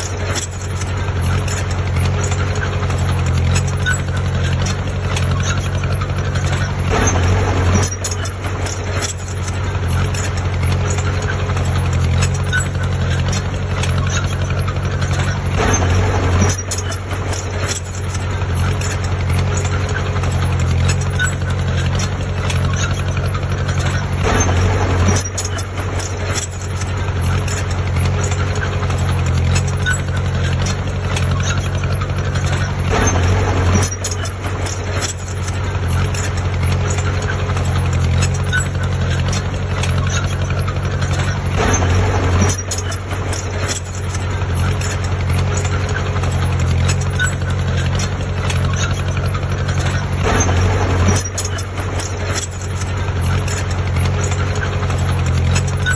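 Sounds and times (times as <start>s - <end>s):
engine surge and clatter: 0.0s - 55.9s
heavy diesel engine running: 0.0s - 55.9s.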